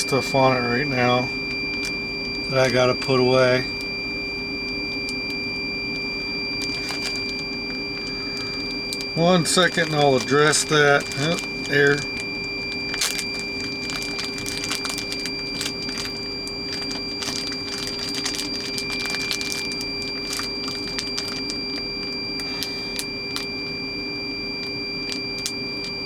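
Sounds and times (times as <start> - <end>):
electrical hum with high whine: 0.0 - 26.0
plastic bags crinkling: 6.5 - 23.5, 25.0 - 25.6.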